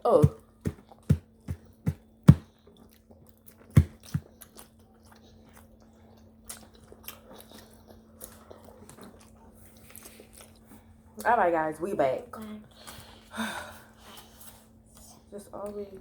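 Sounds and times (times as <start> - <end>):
wet chewing and smacking: 0.4 - 11.3.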